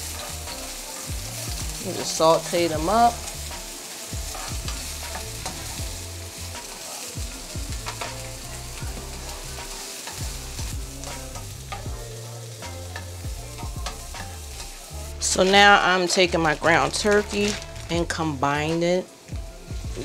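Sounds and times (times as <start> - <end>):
vegetables sizzling in oil: 0.0 - 20.0
spatula scraping and tapping pan: 3.2 - 5.9, 6.5 - 12.0.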